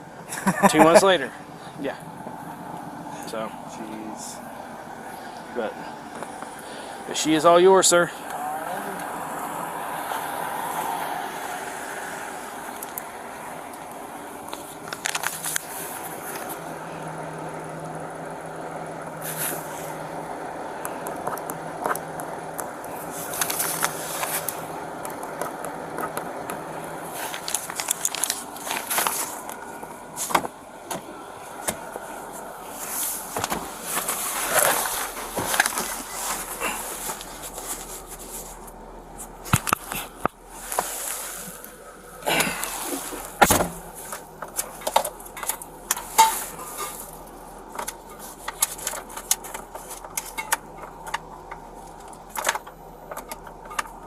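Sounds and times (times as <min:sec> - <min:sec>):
rustling handling noise: 0:27.0 - 0:30.6, 0:31.5 - 0:41.8
handling clicks and knocks: 0:47.7 - 0:54.0.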